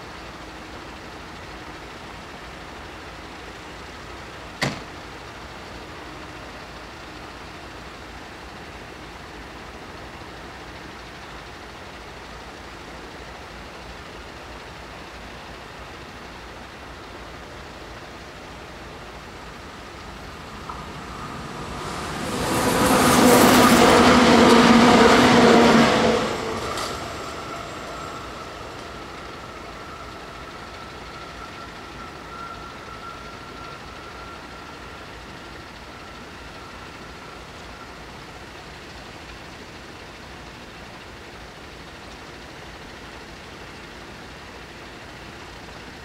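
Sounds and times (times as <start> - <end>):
train passing at speed: 0.0 - 46.0
faint steady whine: 26.4 - 46.0.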